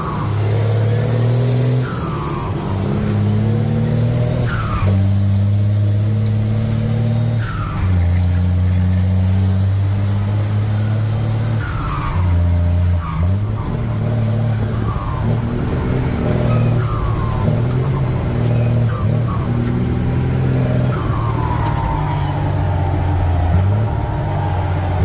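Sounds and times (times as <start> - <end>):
truck engine humming: 0.0 - 25.0
high falling squeals: 10.8 - 25.0.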